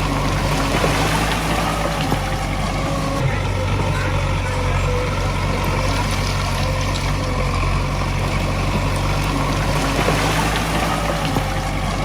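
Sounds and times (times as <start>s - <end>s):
heavy diesel engine droning: 0.0s - 12.0s.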